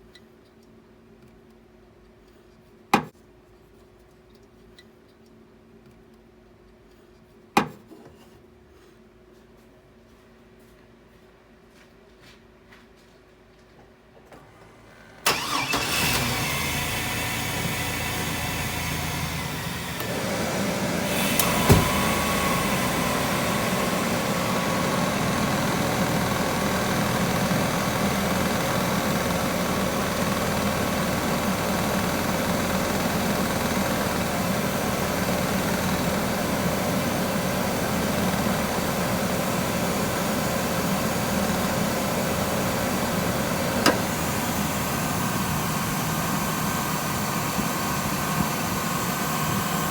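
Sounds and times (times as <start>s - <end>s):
van engine idling: 15.2s - 49.9s.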